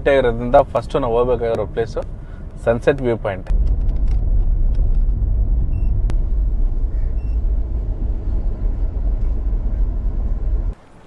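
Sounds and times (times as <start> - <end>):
vehicle rumbling on road: 0.0 - 11.0.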